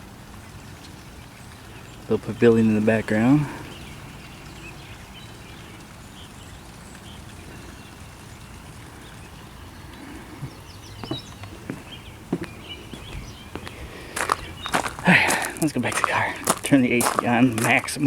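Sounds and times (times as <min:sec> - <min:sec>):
low background noise: 0:00.0 - 0:18.0
faint bird chirps: 0:01.7 - 0:15.1
footsteps on a path: 0:10.0 - 0:18.0.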